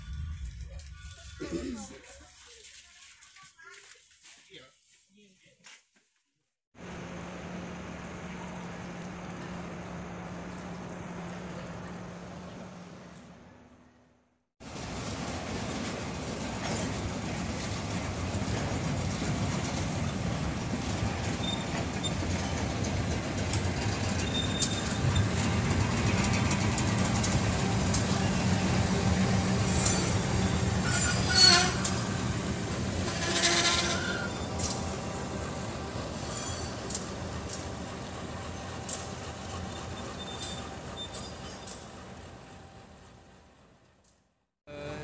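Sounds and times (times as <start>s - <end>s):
train rumbling on rails: 0.0s - 2.3s, 14.6s - 43.9s
train wheel squeals: 21.0s - 37.8s, 38.5s - 42.2s.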